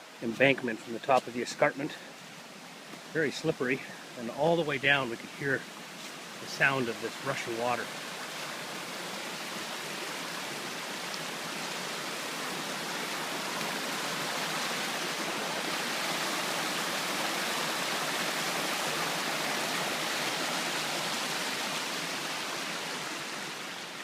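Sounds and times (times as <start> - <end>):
river rushing over rocks: 0.0 - 24.0.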